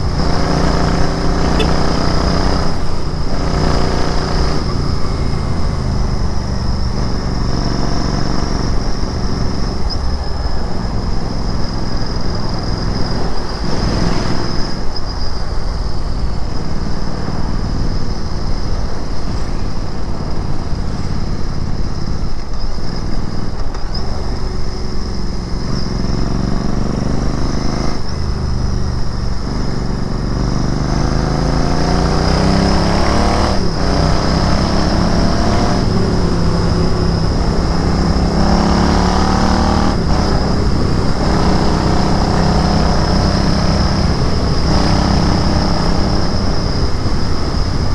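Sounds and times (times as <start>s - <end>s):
motorcycle engine and exhaust: 0.0s - 47.9s.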